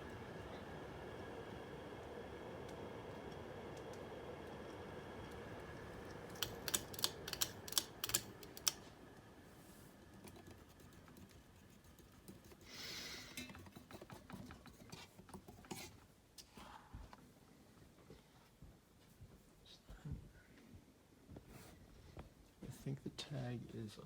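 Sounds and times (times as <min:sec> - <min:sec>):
ceiling fan humming: 0:00.0 - 0:24.0
sharp clicks and rattles: 0:06.3 - 0:08.8.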